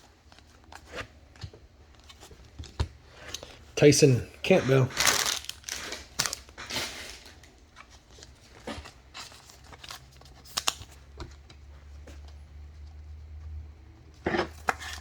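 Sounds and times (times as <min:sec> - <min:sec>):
cards rustling and snapping: 0:04.6 - 0:11.6.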